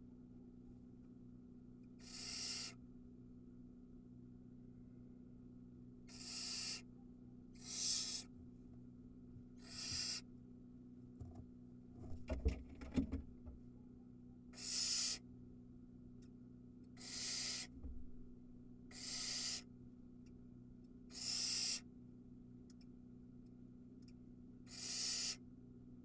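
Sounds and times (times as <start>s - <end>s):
low electrical hum: 0.0s - 26.0s
owl nestlings hissing: 2.0s - 2.8s, 6.1s - 6.9s, 7.6s - 8.3s, 9.6s - 10.3s, 14.6s - 15.2s, 17.0s - 17.8s, 18.9s - 19.7s, 21.1s - 21.9s, 24.7s - 25.4s.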